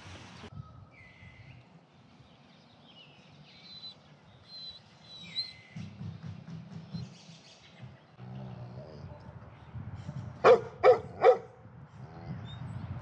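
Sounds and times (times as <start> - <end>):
songbirds chirping and whistling: 0.2 - 13.0.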